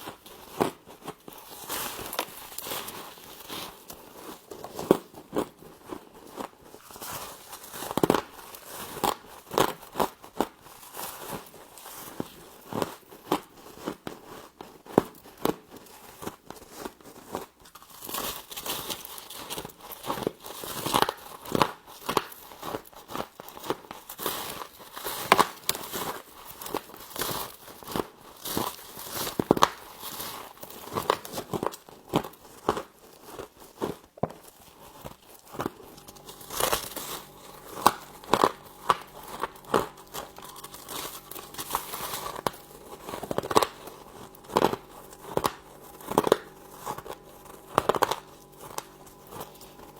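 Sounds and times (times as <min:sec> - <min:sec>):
frost crunching when chewed: 0:15.6 - 0:20.8, 0:34.4 - 0:49.9.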